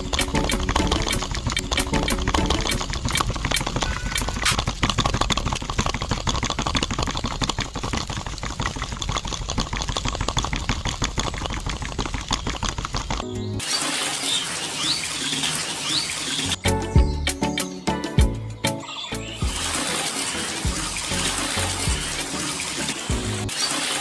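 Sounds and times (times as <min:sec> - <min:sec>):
small motor mechanical rattle: 0:00.0 - 0:16.6.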